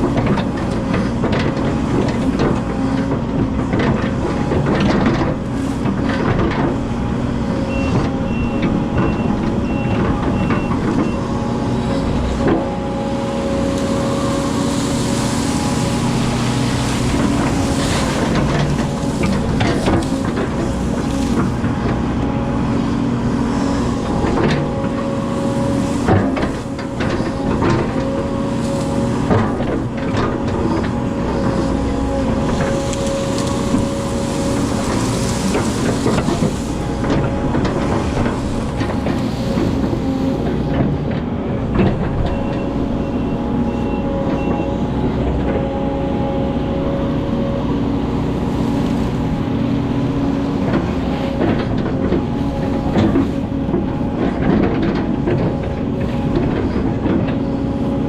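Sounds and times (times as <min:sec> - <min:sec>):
excavator engine and hydraulics: 0:00.0 - 0:58.0
knocks and clanks: 0:29.2 - 0:42.9, 0:50.6 - 0:57.6.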